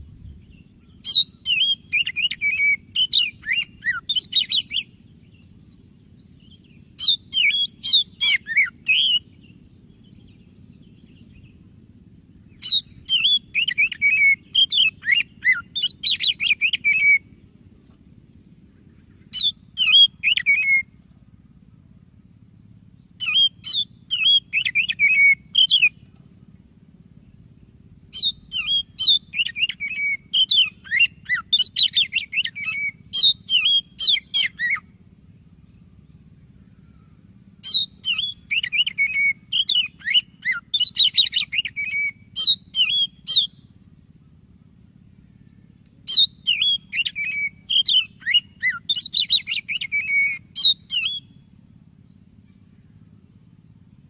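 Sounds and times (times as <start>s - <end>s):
steady low hum: 0.0s - 54.0s
bird singing whistles and chatter: 0.1s - 5.7s, 6.4s - 11.5s, 12.2s - 17.3s, 19.3s - 20.9s, 23.1s - 26.2s, 28.1s - 35.6s, 36.9s - 43.7s, 45.4s - 51.5s.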